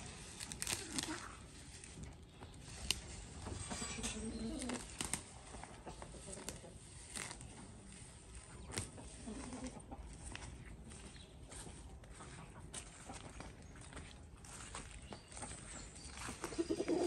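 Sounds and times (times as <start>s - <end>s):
bird cooing low: 3.8s - 5.0s, 16.5s - 17.0s.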